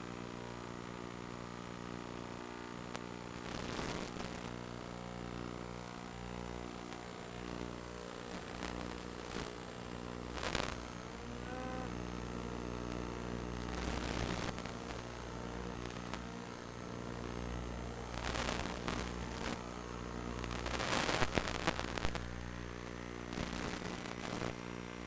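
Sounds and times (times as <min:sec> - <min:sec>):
drone motors buzzing: 0:11.0 - 0:13.5.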